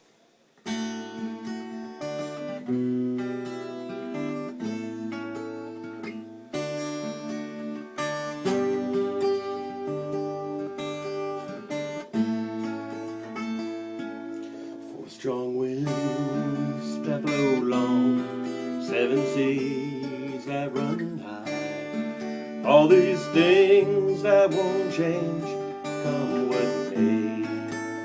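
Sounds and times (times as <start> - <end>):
acoustic guitar strumming chords: 0.6 - 28.0.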